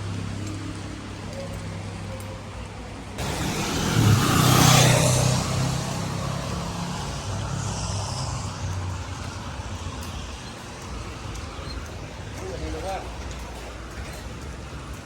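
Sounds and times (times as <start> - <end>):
vehicle engine running: 3.2 - 9.9.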